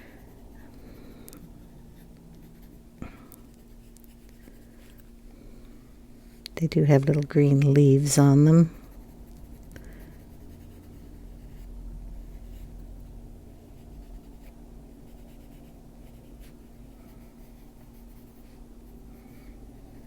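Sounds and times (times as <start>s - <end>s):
faint steady hum: 0.0s - 20.0s
pencil scratching on paper: 1.6s - 2.8s, 8.7s - 19.4s.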